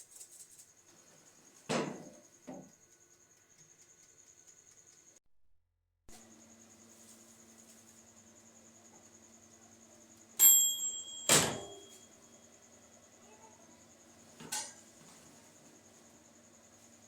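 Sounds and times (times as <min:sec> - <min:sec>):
microwave hum: 0:06.1 - 0:17.0
microwave oven beeping: 0:09.8 - 0:13.0.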